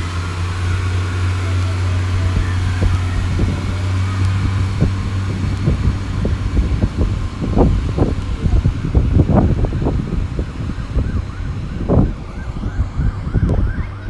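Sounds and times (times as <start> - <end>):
train engine drone: 0.0 - 14.0
wind buffeting microphone: 0.0 - 14.0.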